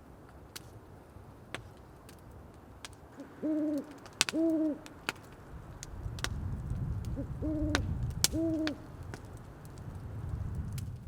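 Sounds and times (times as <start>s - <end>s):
sharp crackling snaps: 0.0s - 11.0s
owl hooting: 3.2s - 4.9s, 7.2s - 8.8s.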